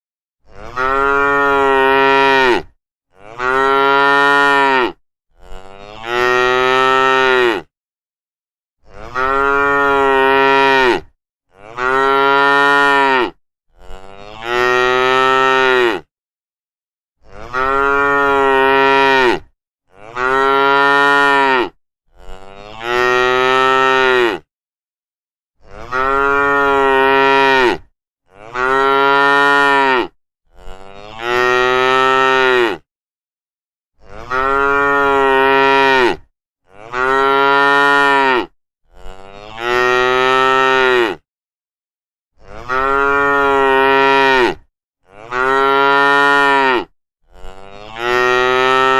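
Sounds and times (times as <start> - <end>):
cows mooing: 0.5 - 7.7, 8.9 - 16.1, 17.3 - 24.5, 25.8 - 32.8, 34.0 - 41.2, 42.4 - 48.9.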